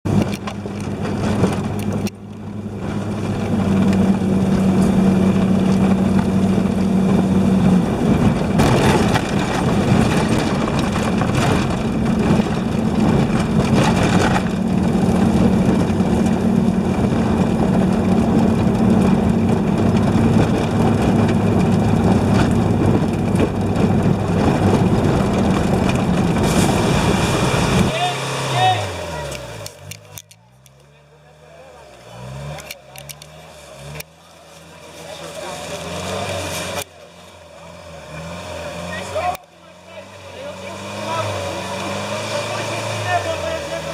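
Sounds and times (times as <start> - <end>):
off-road vehicle engine running: 0.0 - 43.9.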